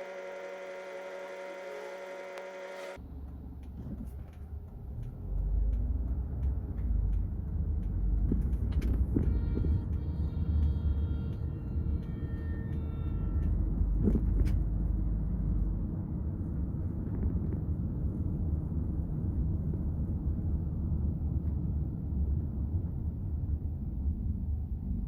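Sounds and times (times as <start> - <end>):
faint steady tones: 0.0 - 3.0
car cabin road rumble: 0.0 - 25.0.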